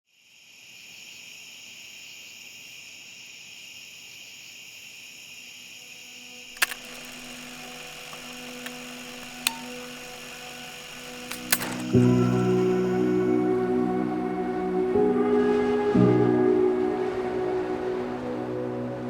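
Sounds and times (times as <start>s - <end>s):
crickets chirring: 0.1s - 13.1s
sharp click: 6.6s - 13.0s.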